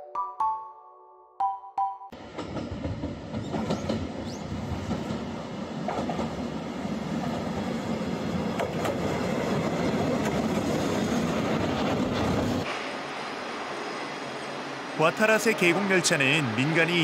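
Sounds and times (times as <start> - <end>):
train rumbling along track: 2.2 - 17.0
sharp clicks from rails: 2.3 - 6.4, 8.5 - 12.8.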